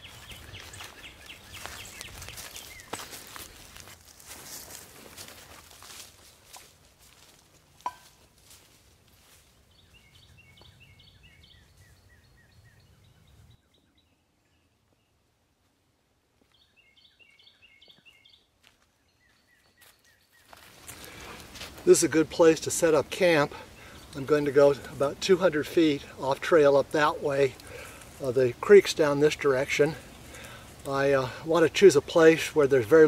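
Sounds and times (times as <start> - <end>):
footsteps on leaf litter: 0.0 - 10.2, 19.7 - 22.2
small bird chirping: 16.5 - 20.5.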